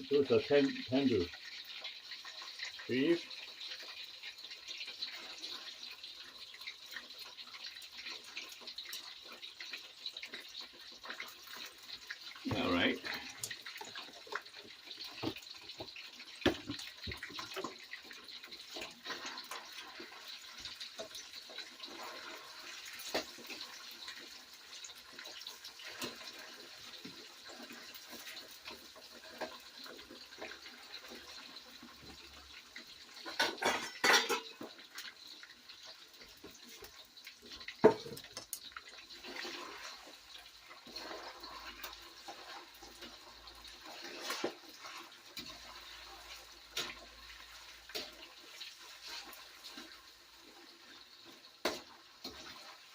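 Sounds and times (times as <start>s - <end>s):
steak sizzling in a wok: 0.0s - 52.9s
metal spatula scraping a pan: 18.1s - 24.3s, 33.1s - 35.1s, 39.2s - 52.9s.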